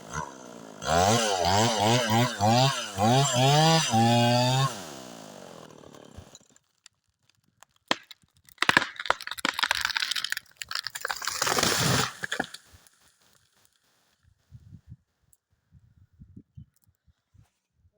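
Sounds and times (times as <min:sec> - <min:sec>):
chainsaw: 0:00.0 - 0:06.6, 0:08.6 - 0:13.4
tree cracking and crashing down: 0:05.2 - 0:13.8
wood and branches snapping: 0:05.4 - 0:12.7.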